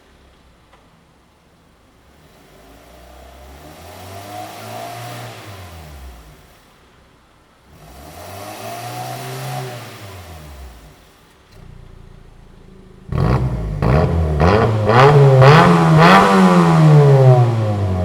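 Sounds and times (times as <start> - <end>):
car engine revving: 7.7 - 18.0.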